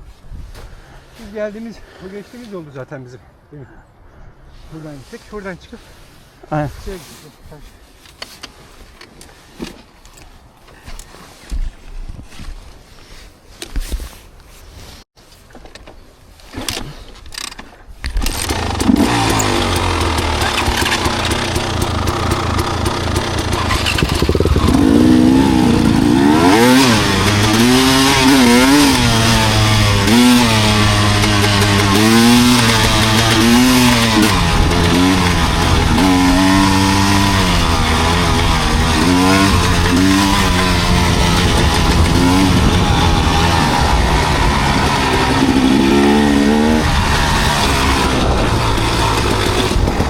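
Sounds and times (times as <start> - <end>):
dirt bike engine revving: 18.2 - 50.0.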